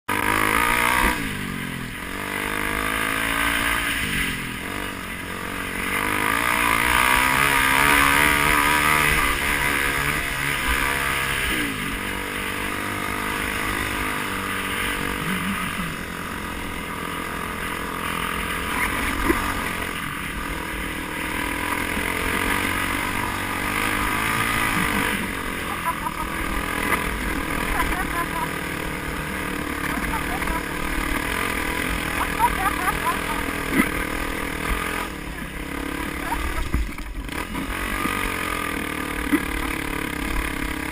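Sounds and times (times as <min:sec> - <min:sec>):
vehicle engine revving: 0:00.1 - 0:40.9.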